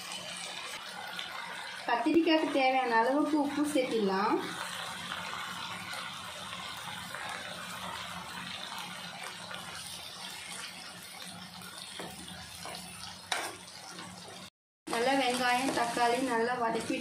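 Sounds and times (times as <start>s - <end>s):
vegetables sizzling in oil: 0.0s - 17.0s
spatula stirring in pan: 4.4s - 17.0s.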